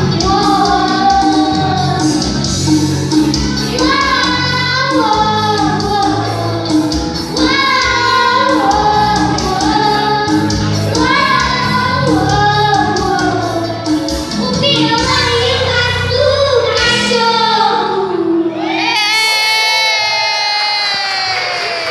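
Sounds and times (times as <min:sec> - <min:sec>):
voices singing: 0:00.0 - 0:15.9
backing music with steady beat: 0:00.0 - 0:21.9.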